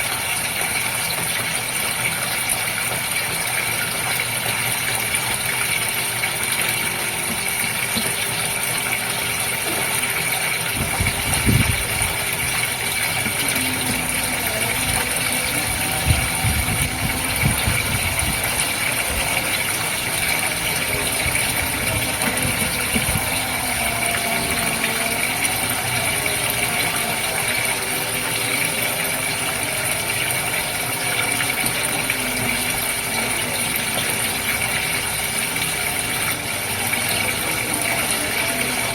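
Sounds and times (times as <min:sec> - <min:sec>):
aquarium water hissing: 0:00.0 - 0:38.9
water gurgling: 0:00.0 - 0:38.9.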